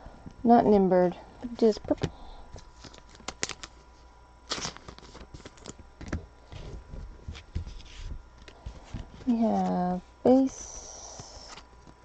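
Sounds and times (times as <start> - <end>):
trading cards clicking and rustling: 1.8 - 3.8, 4.5 - 9.8.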